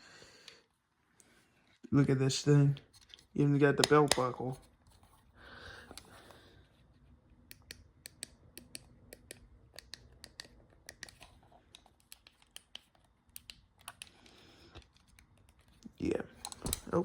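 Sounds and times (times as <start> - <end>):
plastic clicks and scratching: 2.8 - 5.1, 7.5 - 17.0.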